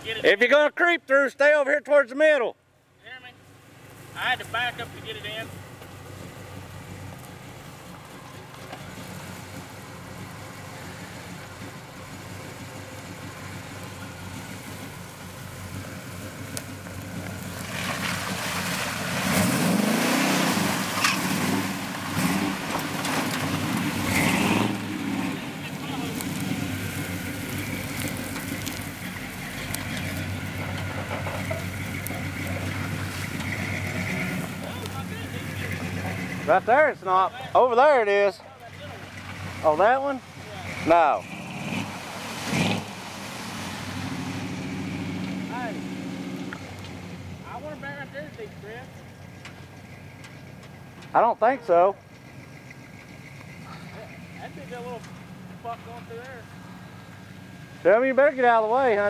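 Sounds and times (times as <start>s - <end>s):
vehicle engine idling: 2.6s - 19.6s, 20.8s - 42.2s, 42.9s - 59.0s
faint clicks and crackles: 25.6s - 36.4s.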